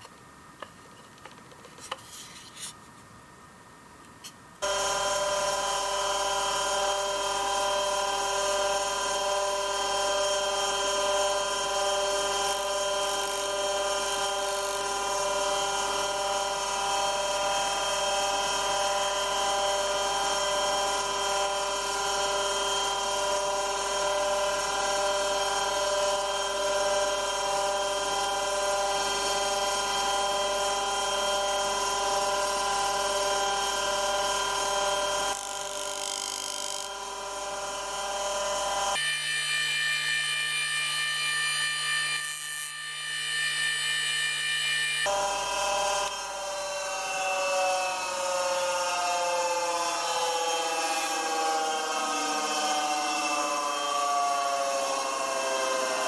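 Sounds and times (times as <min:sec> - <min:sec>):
bench grinder whining: 0:04.6 - 0:47.2.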